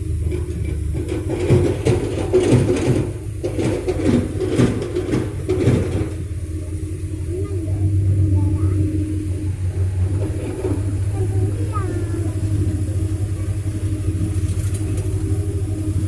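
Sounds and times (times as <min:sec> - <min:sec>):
diesel engine humming: 0:00.0 - 0:16.0
knocking and crackling: 0:00.3 - 0:06.3.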